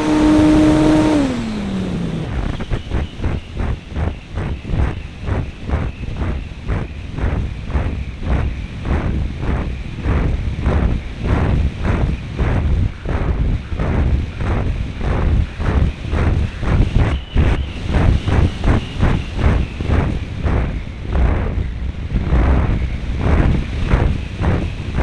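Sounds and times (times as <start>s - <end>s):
small engine high whine: 0.0s - 25.0s
wind buffeting microphone: 0.0s - 25.0s.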